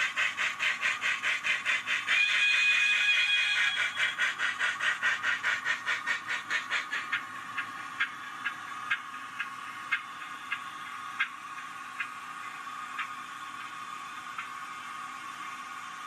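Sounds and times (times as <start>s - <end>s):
model steam exhaust chuffs: 0.0s - 16.0s
whistle: 2.2s - 4.1s
steady high hum: 7.0s - 16.0s.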